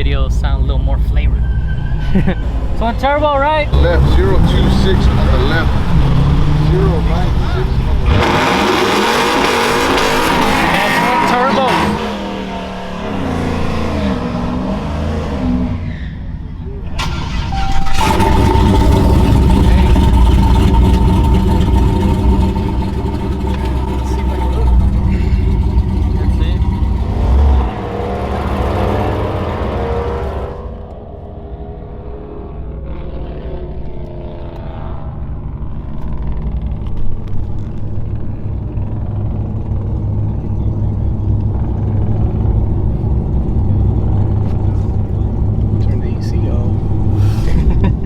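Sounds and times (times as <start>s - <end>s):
engine idling with deep rumble: 0.0s - 8.1s, 16.5s - 29.1s, 35.0s - 48.0s
high-pitched turbo whine: 0.0s - 47.4s.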